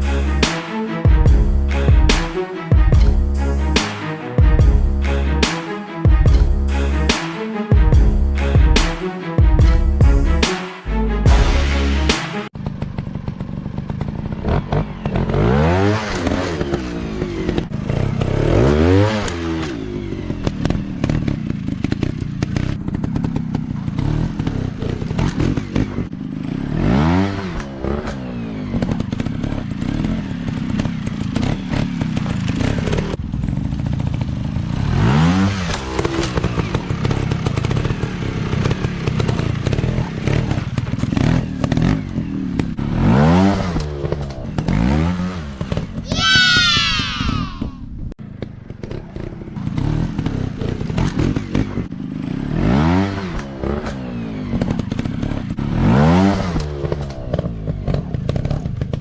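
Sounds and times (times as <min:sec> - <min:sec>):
dirt bike engines revving: 0:12.6 - 0:47.7.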